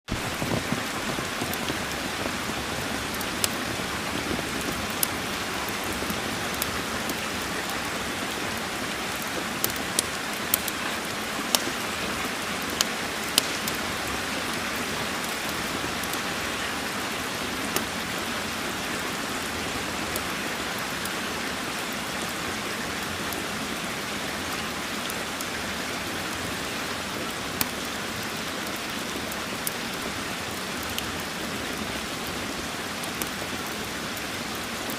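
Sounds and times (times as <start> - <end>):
steady rain: 0.1 - 34.9
sharp pops and ticks: 3.0 - 7.2, 9.1 - 16.2.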